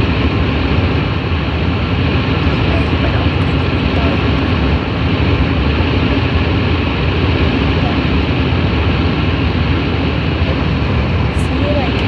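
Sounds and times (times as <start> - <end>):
car cabin rumble: 1.5 - 8.9.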